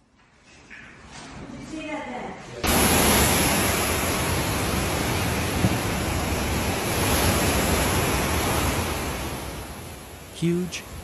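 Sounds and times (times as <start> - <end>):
dense rush of wind: 2.6 - 11.0.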